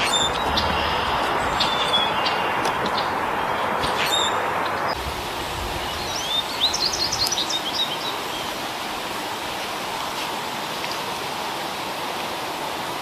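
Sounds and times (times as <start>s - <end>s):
bird chirping high notes: 0.0s - 5.0s
steady rushing noise: 0.0s - 13.0s.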